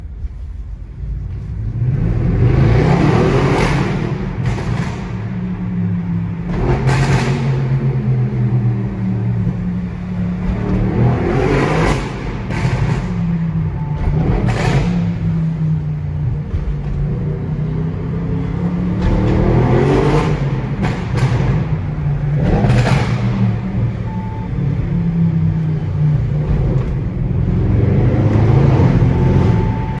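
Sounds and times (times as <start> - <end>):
car exhaust burbling and revving: 0.9 - 30.0.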